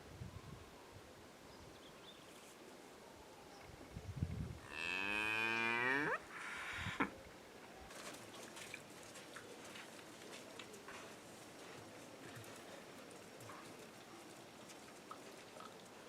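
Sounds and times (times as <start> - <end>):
cow mooing: 4.7 - 7.1.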